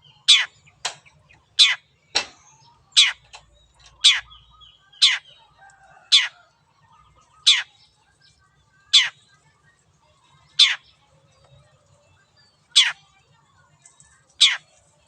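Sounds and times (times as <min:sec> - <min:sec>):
shrike calling: 0:00.0 - 0:00.7, 0:03.9 - 0:06.5, 0:07.3 - 0:07.8, 0:08.9 - 0:09.2, 0:10.6 - 0:10.9, 0:12.7 - 0:13.0.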